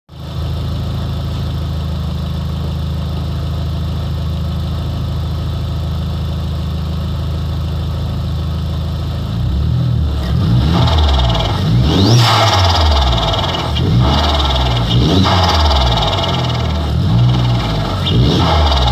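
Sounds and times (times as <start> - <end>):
car engine idling and revving: 0.1 - 18.9
turbo flutter: 10.7 - 18.9.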